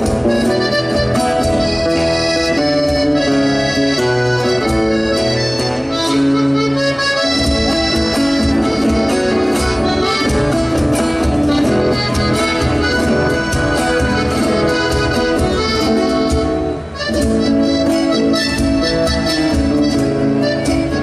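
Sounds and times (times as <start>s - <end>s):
accordion folk music: 0.0s - 21.0s.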